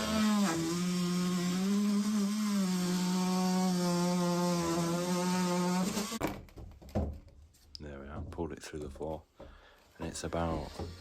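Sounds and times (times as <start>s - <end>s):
power saw cutting pipe: 0.0s - 6.2s.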